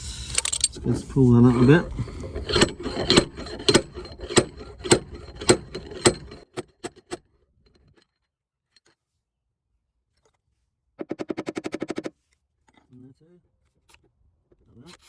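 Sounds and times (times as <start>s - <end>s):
dent puller knocking on metal: 1.3s - 7.2s.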